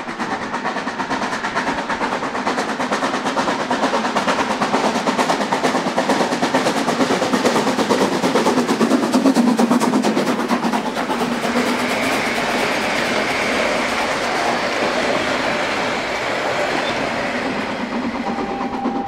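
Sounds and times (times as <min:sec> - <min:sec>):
steam locomotive exhaust beats: 0:00.0 - 0:19.0.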